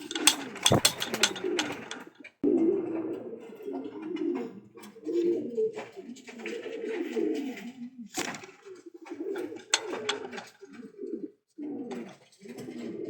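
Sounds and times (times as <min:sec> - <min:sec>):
sharp clicks and knocks: 0:00.0 - 0:02.1, 0:09.6 - 0:10.6
pigeons cooing: 0:00.0 - 0:13.0.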